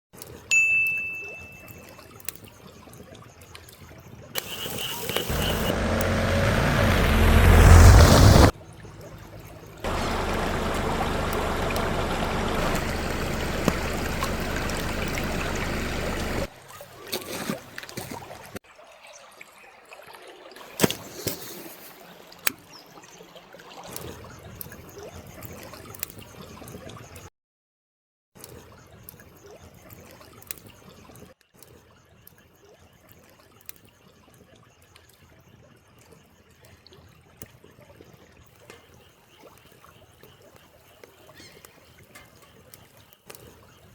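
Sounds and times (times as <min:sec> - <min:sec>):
stream trickling and gurgling: 0:00.2 - 0:27.3, 0:28.4 - 0:43.9
wood fire crackling: 0:05.3 - 0:08.5, 0:09.9 - 0:16.5.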